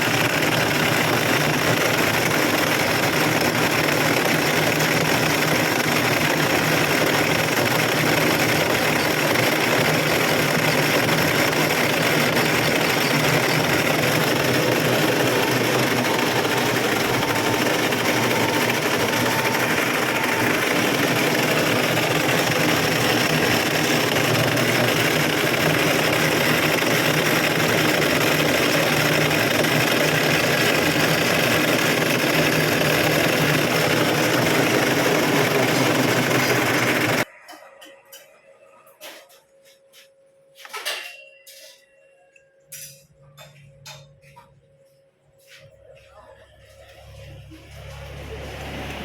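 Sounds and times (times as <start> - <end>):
power tool motor running: 0.0 - 37.3.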